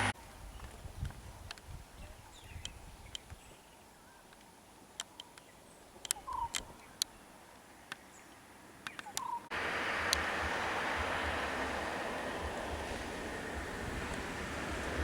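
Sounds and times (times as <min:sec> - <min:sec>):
bird chirps: 0:05.2 - 0:07.2, 0:08.0 - 0:09.5
steady rushing noise: 0:09.5 - 0:15.0.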